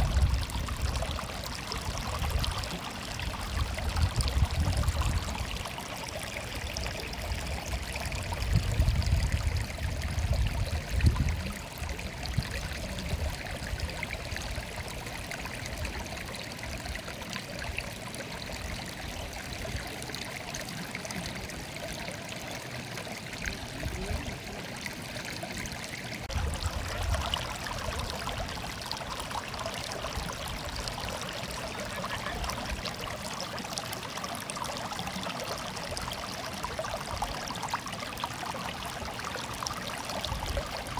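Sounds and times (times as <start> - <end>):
stream water babbling: 0.0 - 40.9.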